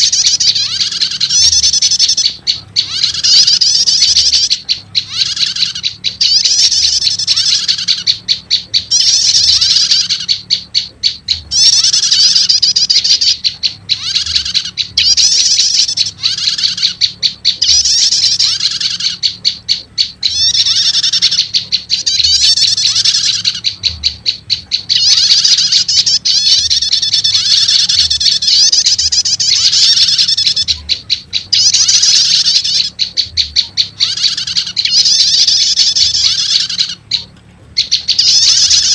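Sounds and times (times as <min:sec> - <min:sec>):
bird chattering trills: 0:00.0 - 0:38.9.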